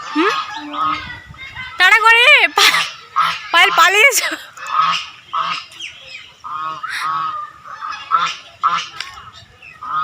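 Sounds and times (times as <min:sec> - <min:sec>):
geese honking: 0:03.2 - 0:10.0.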